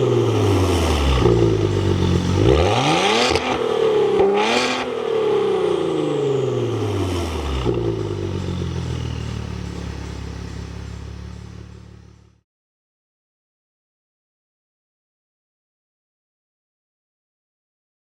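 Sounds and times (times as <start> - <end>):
sports car engine revving: 0.0 - 12.4.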